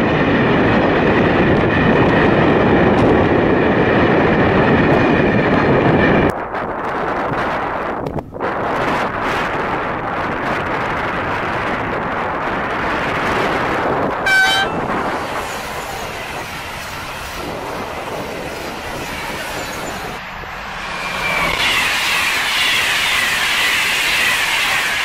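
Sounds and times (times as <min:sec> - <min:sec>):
high-speed train passing: 0:00.0 - 0:25.0
train wheels rushing on rails: 0:00.0 - 0:25.0
train horn blast: 0:14.2 - 0:15.1.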